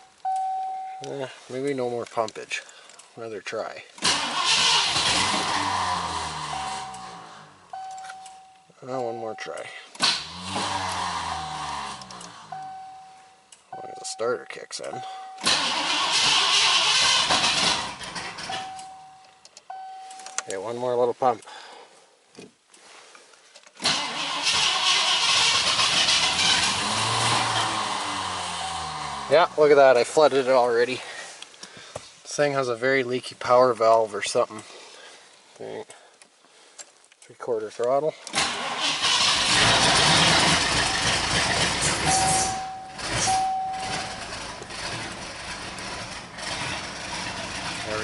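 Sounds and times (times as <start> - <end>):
starter cranking engine: 4.0 - 5.8, 15.4 - 18.7, 23.8 - 29.4, 38.3 - 48.0
car engine running: 39.4 - 48.0.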